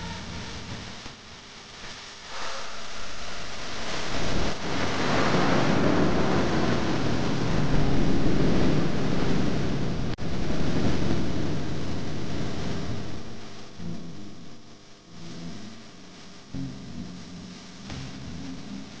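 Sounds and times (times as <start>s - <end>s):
water spraying from hose: 2.2s - 8.5s.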